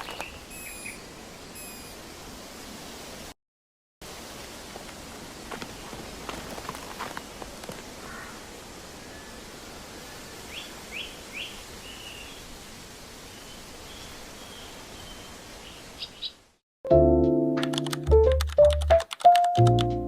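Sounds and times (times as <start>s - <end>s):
bird chirps and trill: 0.0s - 1.9s, 13.9s - 16.4s
outdoor background noise: 0.0s - 3.4s, 4.0s - 16.6s
piano music: 16.9s - 20.0s.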